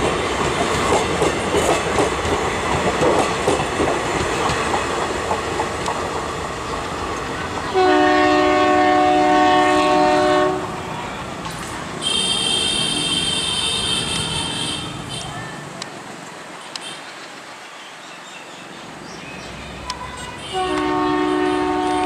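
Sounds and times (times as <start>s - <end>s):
train wheels clattering: 0.0s - 7.0s
train horn: 7.7s - 10.8s, 20.2s - 22.0s.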